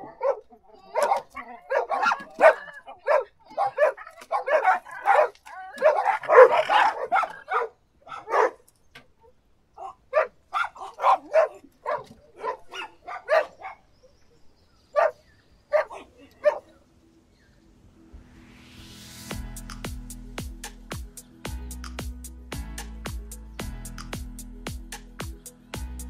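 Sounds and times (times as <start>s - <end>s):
dog barking: 0.0s - 13.9s, 14.9s - 16.7s.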